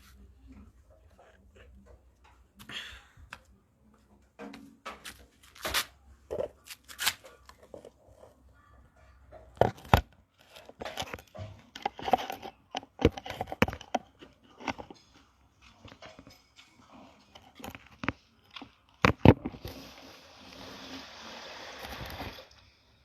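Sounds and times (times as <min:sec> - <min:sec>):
handling knocks and clatters: 0:04.0 - 0:19.6
rushing water: 0:19.6 - 0:22.6.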